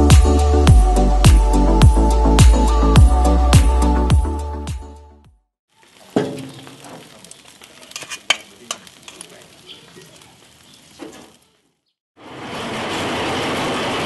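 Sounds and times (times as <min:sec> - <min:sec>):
food sizzling: 0:05.7 - 0:12.0
utensils clicking and tapping: 0:07.9 - 0:09.3.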